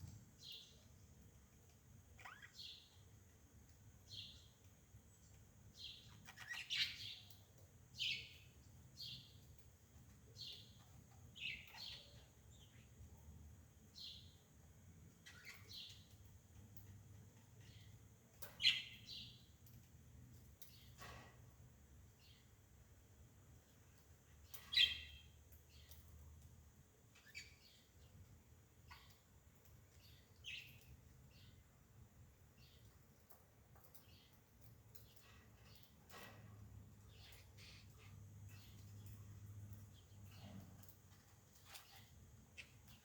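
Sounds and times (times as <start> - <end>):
bird chirping: 0.0 - 3.3, 4.0 - 13.3, 13.9 - 19.8, 23.7 - 26.3, 27.1 - 31.8, 36.9 - 43.0.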